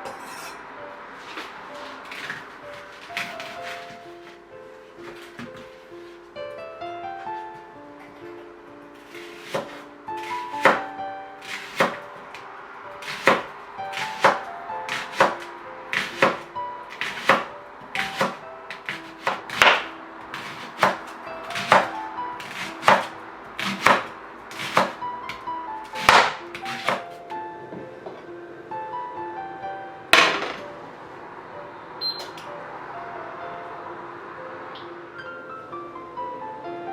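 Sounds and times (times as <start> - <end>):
gentle background music: 0.0 - 36.9
knife chopping on cutting board: 1.8 - 3.9, 9.2 - 12.1, 13.0 - 27.1.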